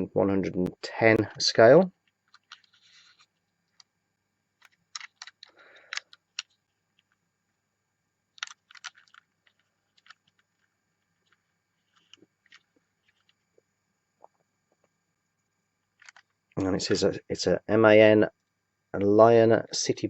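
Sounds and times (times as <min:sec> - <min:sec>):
toy scraping: 0:02.2 - 0:03.9, 0:08.4 - 0:13.4.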